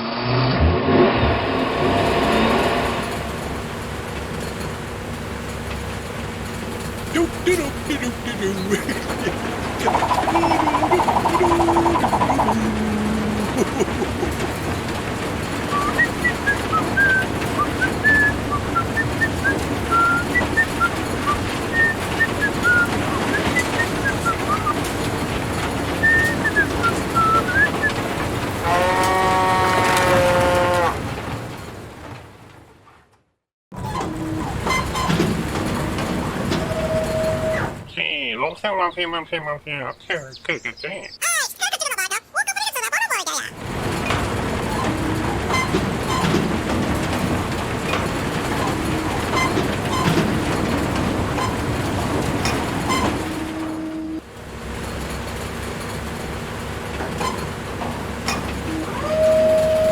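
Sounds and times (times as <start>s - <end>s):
steady pitched honk: 28.6s - 31.1s, 58.7s - 59.9s.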